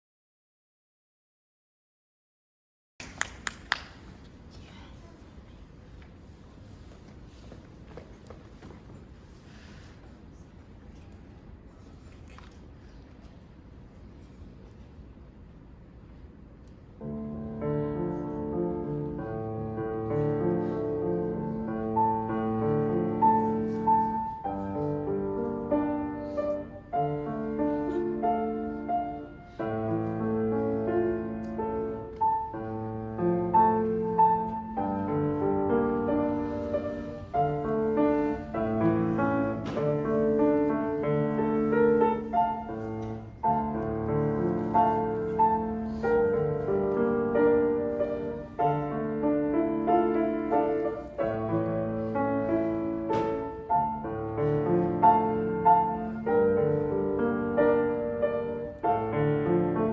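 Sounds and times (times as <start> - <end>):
solo piano melody: 17.0 - 59.9.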